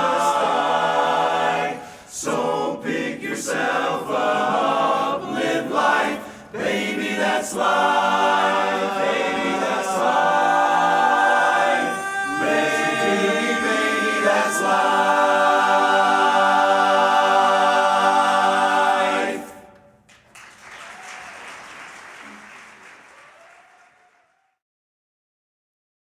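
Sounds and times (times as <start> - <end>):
men's chorus singing a cappella: 0.0 - 19.8
applause: 20.1 - 24.6.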